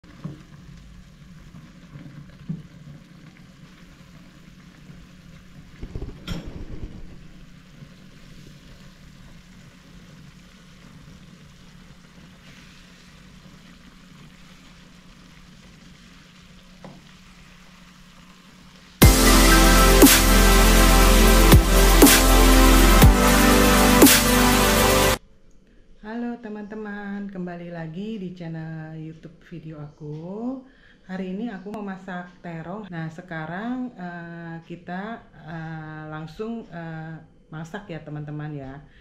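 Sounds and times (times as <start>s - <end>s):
eggplant sizzling in a wok: 0.1s - 23.8s.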